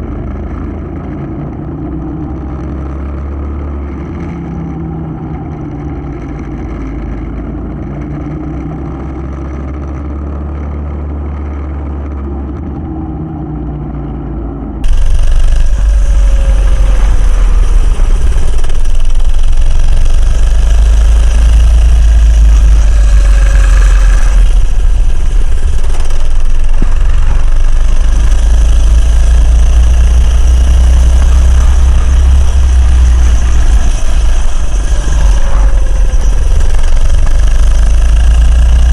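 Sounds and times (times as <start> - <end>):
wind rumble on microphone: 0.0 - 38.9
minibike engine running: 14.8 - 38.9.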